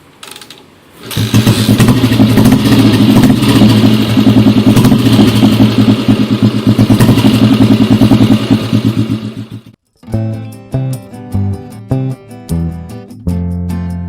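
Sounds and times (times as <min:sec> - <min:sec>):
two-stroke motorcycle engine running: 0:01.0 - 0:09.8.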